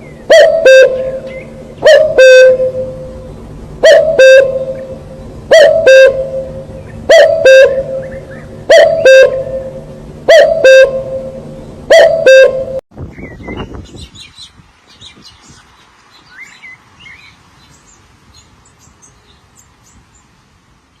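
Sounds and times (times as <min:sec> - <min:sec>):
bird two-note call: 0:00.3 - 0:12.8
small birds chirping: 0:13.1 - 0:21.0.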